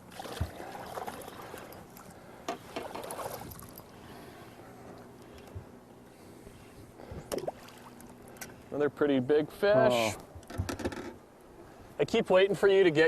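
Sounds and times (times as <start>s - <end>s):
water splashing against boat: 0.0s - 4.3s.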